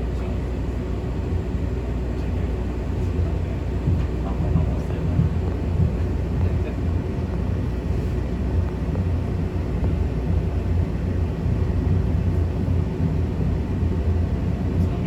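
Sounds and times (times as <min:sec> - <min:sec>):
train wheels rumbling: 0:03.2 - 0:13.9.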